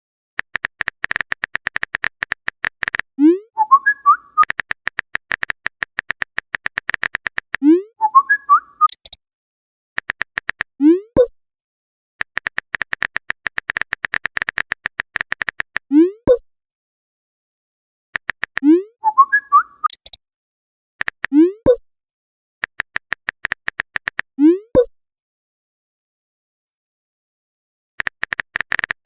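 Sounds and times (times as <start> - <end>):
quick typing clicks: 0.4 - 3.1, 4.3 - 7.6, 10.0 - 10.7, 12.2 - 15.9, 18.2 - 18.7, 21.0 - 21.3, 22.6 - 24.3, 28.0 - 29.0
short rising whistle: 3.6 - 4.5.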